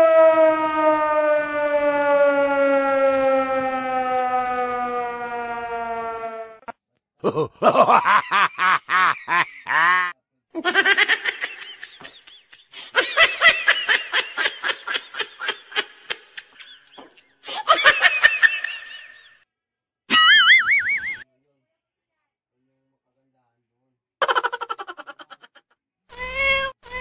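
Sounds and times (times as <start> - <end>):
high-pitched giggling laughter: 7.2 - 19.3, 20.1 - 21.2, 24.2 - 25.7.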